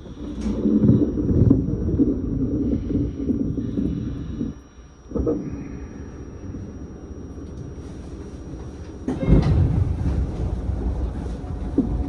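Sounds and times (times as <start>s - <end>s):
train carriage rumble: 7.6s - 12.0s
sudden loud burst of noise: 9.1s - 12.0s.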